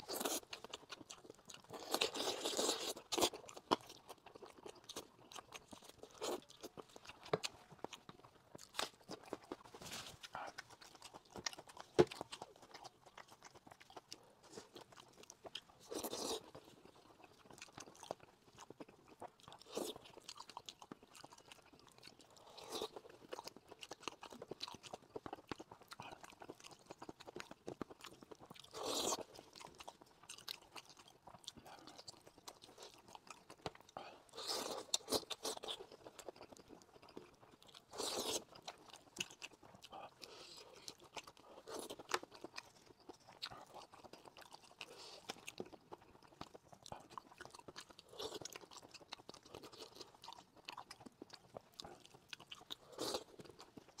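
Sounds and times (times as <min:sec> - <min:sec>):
wet chewing and lip smacking: 0:00.0 - 0:54.0
meat being bitten and pulled: 0:37.8 - 0:54.0.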